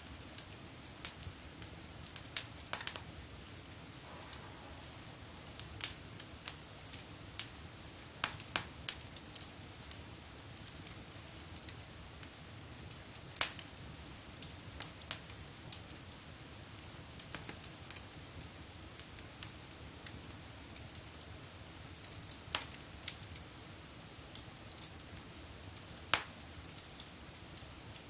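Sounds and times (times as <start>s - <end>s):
wood fire crackling and popping: 0.0s - 28.0s
low rush of flame: 3.7s - 7.6s.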